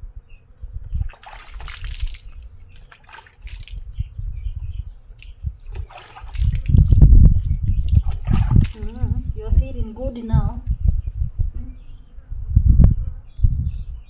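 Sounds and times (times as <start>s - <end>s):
water splashing and dripping: 0.8s - 9.3s.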